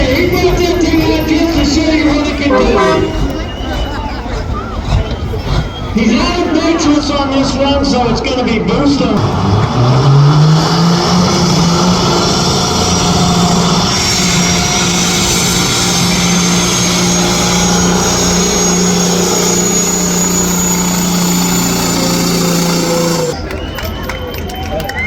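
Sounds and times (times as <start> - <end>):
engine at high revs: 1.6 - 6.6, 9.2 - 23.5
faint high whine: 14.2 - 23.4.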